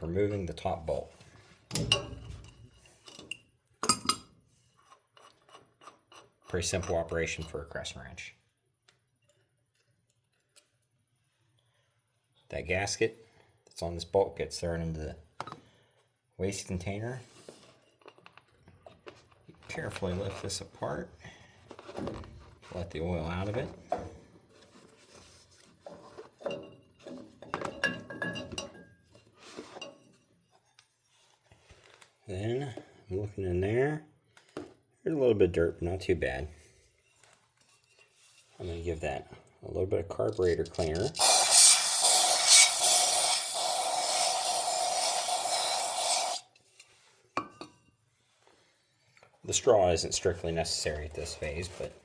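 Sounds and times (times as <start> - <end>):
metal canister clinking and knocking: 1.7 - 2.6, 3.2 - 4.3
aerosol spray hissing: 41.1 - 46.4.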